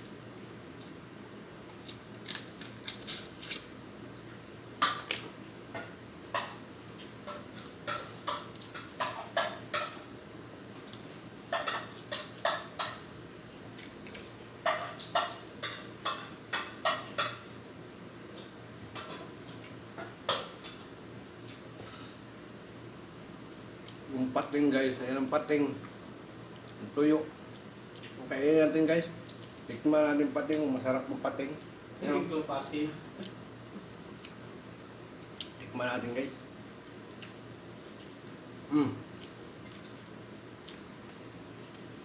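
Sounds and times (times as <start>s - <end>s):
cutlery clinking on plates: 11.5s - 13.1s, 14.6s - 17.5s.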